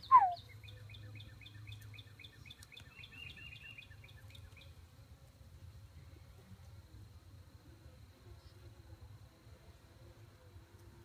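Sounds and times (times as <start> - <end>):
songbird whistling and chirping: 0.0 - 4.0.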